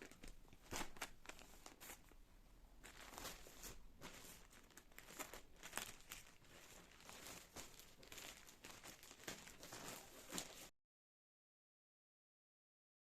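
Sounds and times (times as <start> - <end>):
crinkling and rustling: 0.0 - 2.2, 2.8 - 10.7.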